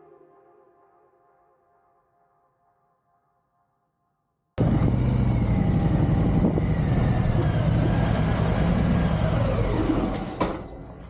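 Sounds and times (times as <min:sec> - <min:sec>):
motorcycle engine running: 0:04.6 - 0:10.2.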